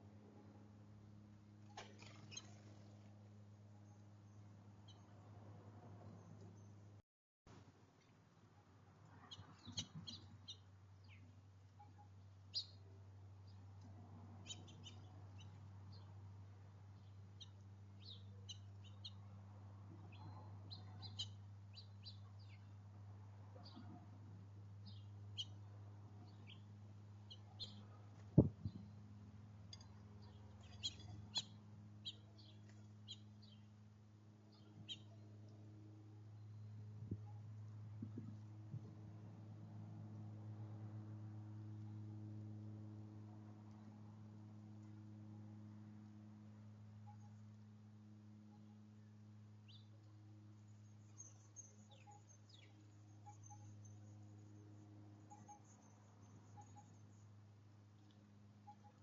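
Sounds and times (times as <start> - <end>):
faint low hum: 0.0 - 59.0
small birds chirping: 1.9 - 3.0, 9.2 - 13.7, 14.4 - 16.2, 16.9 - 19.3, 20.0 - 22.8, 24.8 - 29.1, 29.7 - 33.8, 34.4 - 35.6, 49.6 - 57.4.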